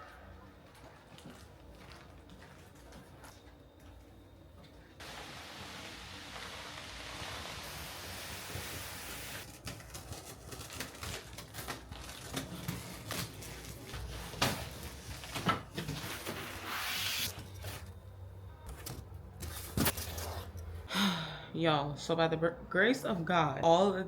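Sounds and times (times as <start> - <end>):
steady hiss: 5.0 - 9.4.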